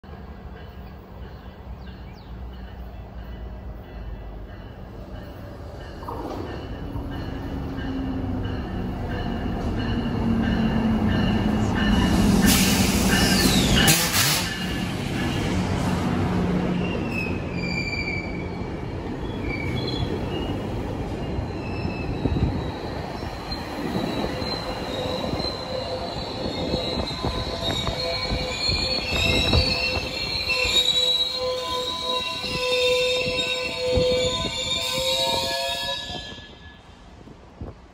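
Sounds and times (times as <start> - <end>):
train rumbling: 0.0 - 37.9
wheel and brake squeals: 16.8 - 18.4, 19.2 - 20.6, 21.2 - 36.9.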